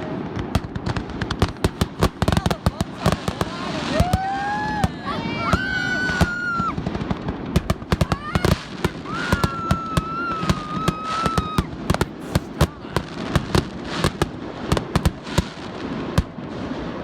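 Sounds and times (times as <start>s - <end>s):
fireworks bangs and crackles: 0.0s - 17.0s
high firework whistle: 3.3s - 6.8s, 8.0s - 12.7s.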